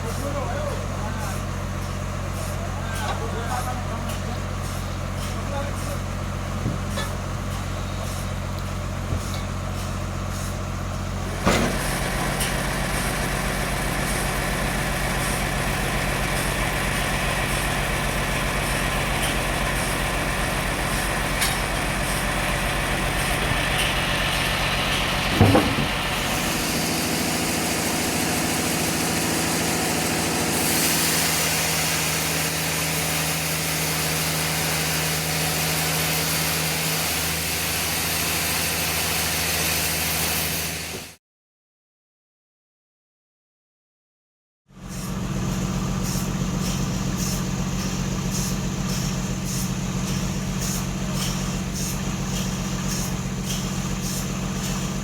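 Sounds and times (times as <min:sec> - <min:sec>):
sawmill engine running: 0:00.0 - 0:41.2, 0:44.8 - 0:55.0
hiss: 0:11.4 - 0:41.2, 0:44.8 - 0:55.0
machinery knock: 0:25.3 - 0:26.1.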